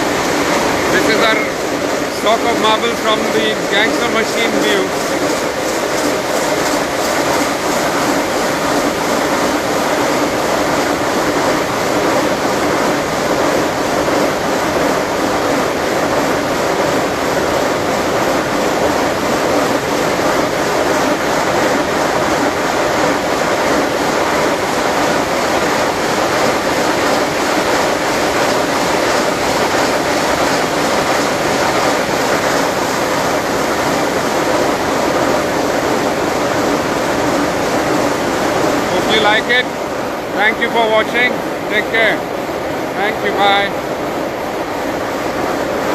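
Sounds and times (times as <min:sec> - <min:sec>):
gang saw running: 0:00.0 - 0:08.5.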